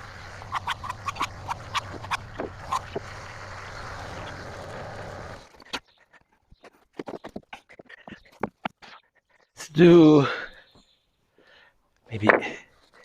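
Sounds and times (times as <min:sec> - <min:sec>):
engine running: 0:00.0 - 0:05.6.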